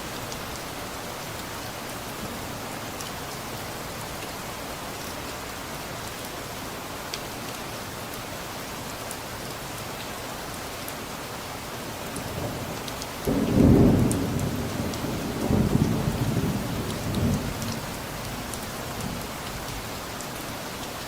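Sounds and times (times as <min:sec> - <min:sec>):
steady rain: 0:00.0 - 0:21.0
rolling thunder: 0:13.3 - 0:17.9.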